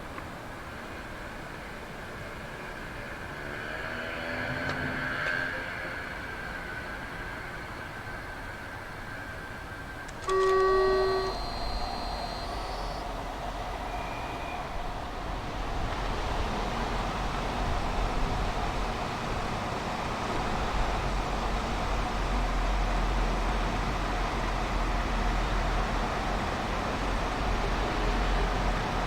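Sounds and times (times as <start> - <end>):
train rumbling: 0.0 - 29.0
train whistle blast: 10.1 - 14.8.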